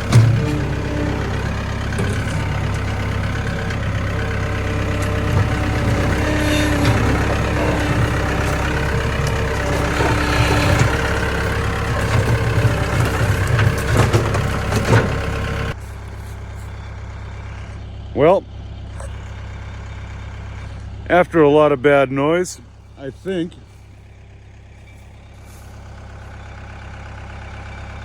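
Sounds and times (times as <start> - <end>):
sharp metallic clunks: 0.0 - 15.7
vehicle engine running: 0.0 - 28.0.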